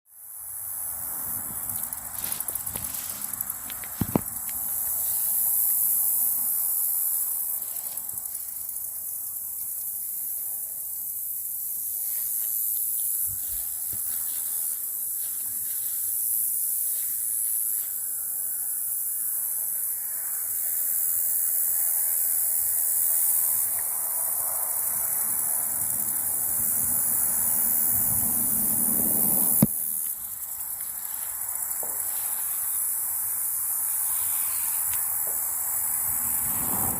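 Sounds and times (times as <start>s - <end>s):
high-pitched insect chorus: 0.1s - 36.9s
footsteps through leaf litter: 1.8s - 4.1s, 13.4s - 16.0s, 30.8s - 32.8s.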